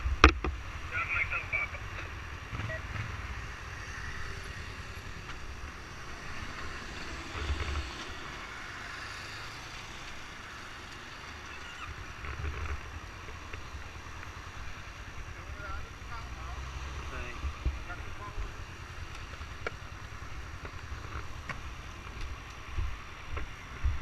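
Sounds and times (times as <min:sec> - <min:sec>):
low rumbles: 0:09.6 - 0:24.0
wind buffeting microphone: 0:20.6 - 0:24.0.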